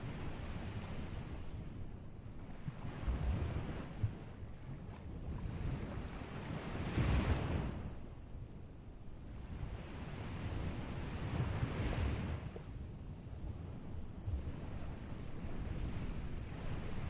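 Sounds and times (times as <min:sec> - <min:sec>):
wind rumble on microphone: 0:00.0 - 0:17.0
ocean surf on a beach: 0:05.4 - 0:08.0, 0:09.4 - 0:12.6, 0:13.2 - 0:17.0.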